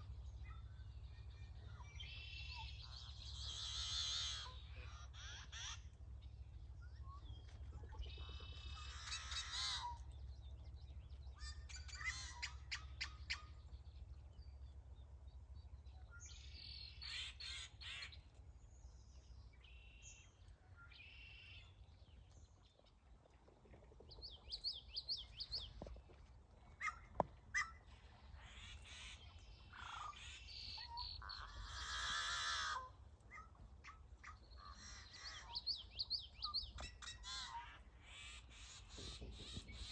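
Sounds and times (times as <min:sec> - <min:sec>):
birds chirping and trilling: 0:00.0 - 0:39.9
steady low rumble: 0:04.5 - 0:17.0.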